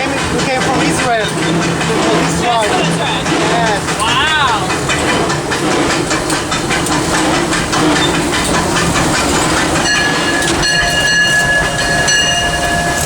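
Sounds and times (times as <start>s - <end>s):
steam locomotive hiss and rattle: 0.0s - 13.0s
steam whistle blowing: 9.8s - 13.0s.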